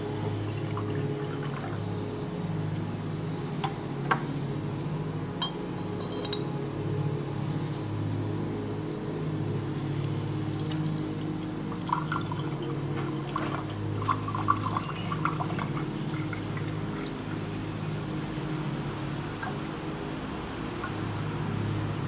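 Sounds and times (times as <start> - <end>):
steady low drone: 0.0 - 22.0
water pouring and dripping: 9.8 - 18.4, 19.4 - 19.7, 20.8 - 21.1.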